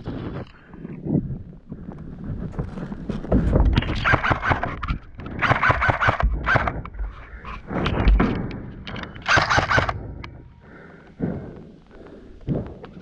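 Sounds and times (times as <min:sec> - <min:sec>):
airsoft gun bursts: 0:09.2 - 0:10.0.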